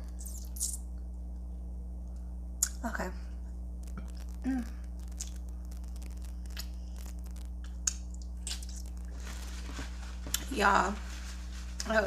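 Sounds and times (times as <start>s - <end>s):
low electrical hum: 0.0s - 12.0s
eating clicks and crackles: 3.8s - 10.5s
person humming: 4.0s - 5.2s.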